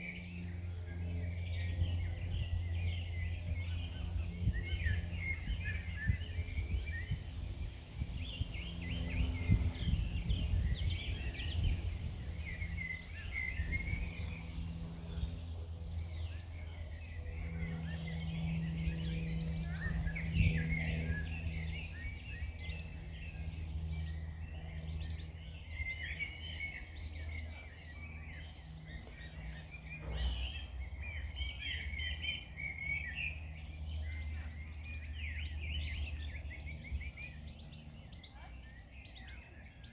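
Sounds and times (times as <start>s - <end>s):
low background rumble: 0.0s - 39.7s
songbirds singing and chirping: 0.0s - 39.9s.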